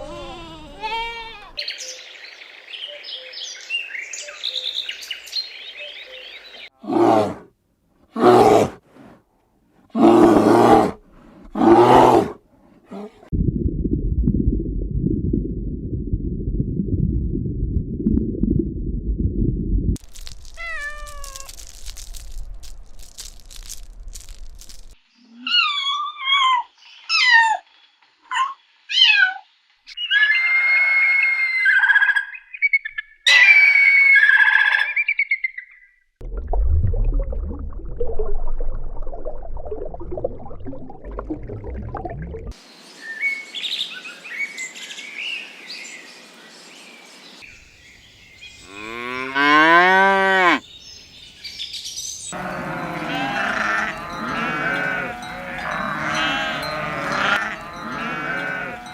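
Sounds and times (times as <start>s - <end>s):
wavering animal calls: 52.3s - 58.9s
long pitched animal call: 52.4s - 58.9s.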